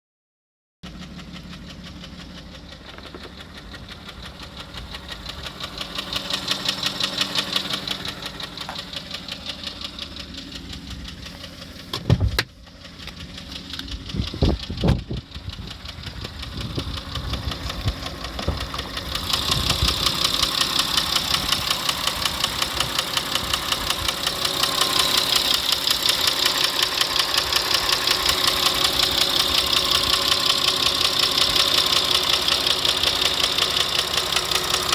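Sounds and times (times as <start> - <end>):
engine running with rhythmic knock: 0.8 - 34.9.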